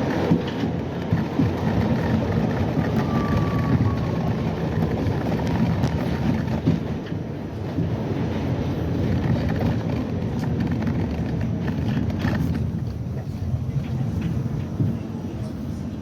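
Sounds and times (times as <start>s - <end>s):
subway train rumbling on rails: 0.0s - 16.0s.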